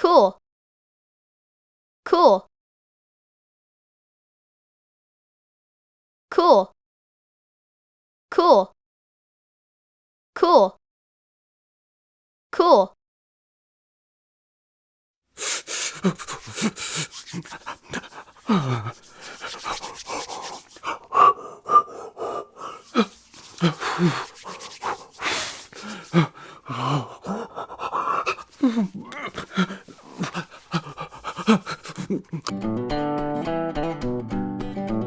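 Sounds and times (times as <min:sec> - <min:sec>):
person gasping sighing and groaning: 0:15.4 - 0:32.5.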